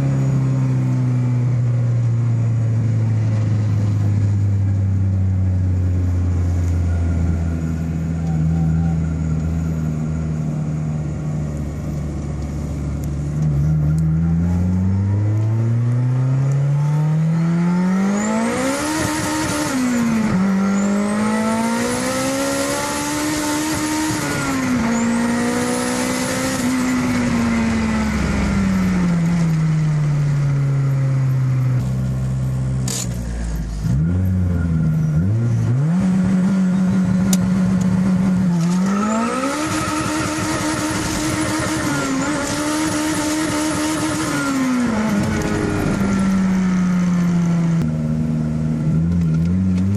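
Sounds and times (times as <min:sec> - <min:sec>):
car engine revving: 0:11.8 - 0:49.9.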